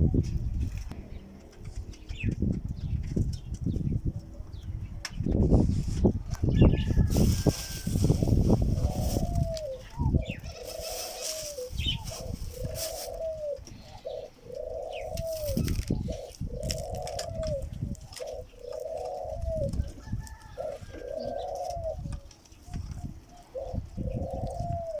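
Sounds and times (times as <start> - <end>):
pigeon cooing: 6.3 - 25.0.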